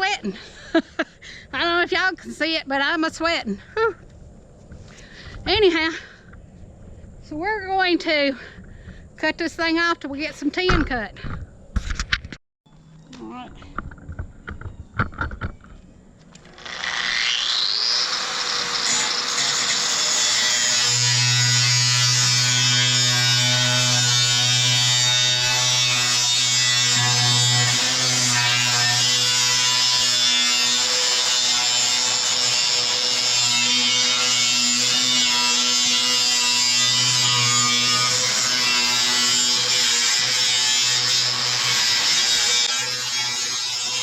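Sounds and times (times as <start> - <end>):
power tool cutting sheet metal: 16.4 - 44.0.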